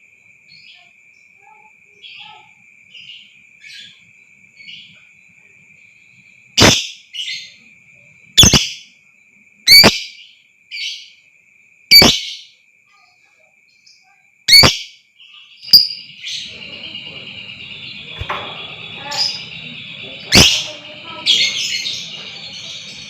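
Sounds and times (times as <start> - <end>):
continuous bird chatter: 0.0 - 23.0
lovebird shrill calls: 6.6 - 7.5, 8.4 - 8.9, 9.7 - 10.2, 11.9 - 12.5, 14.5 - 14.9, 15.6 - 23.0
steady high-pitched tone: 15.8 - 23.0.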